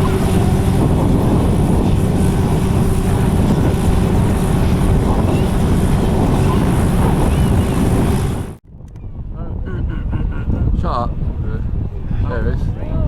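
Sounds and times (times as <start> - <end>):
faint engine drone: 0.0 - 9.0
wind rumbling on microphone: 0.0 - 13.0.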